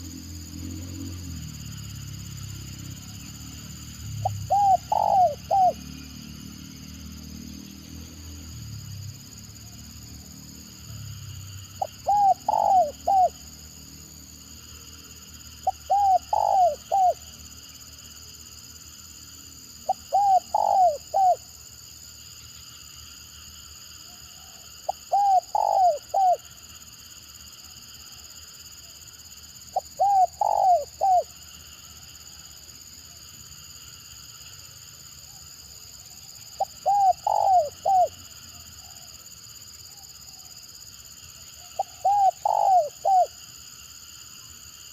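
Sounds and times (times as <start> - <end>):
dove cooing: 4.2 - 5.8, 11.8 - 13.4, 15.6 - 17.3, 19.9 - 21.4, 24.4 - 26.5, 29.7 - 31.3, 36.6 - 38.2, 41.8 - 43.4.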